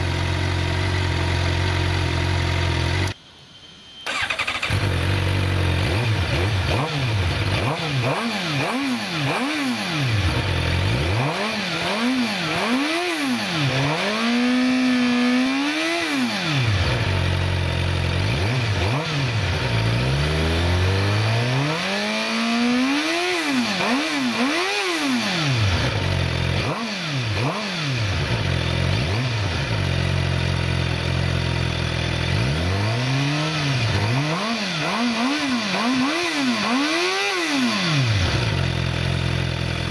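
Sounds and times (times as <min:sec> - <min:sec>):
motorcycle engine idling: 0:00.0 - 0:03.2, 0:04.1 - 0:07.7, 0:09.2 - 0:12.9, 0:16.8 - 0:20.4, 0:25.4 - 0:32.6, 0:37.8 - 0:39.9
motorcycle engine revving: 0:00.0 - 0:03.2, 0:04.0 - 0:39.9.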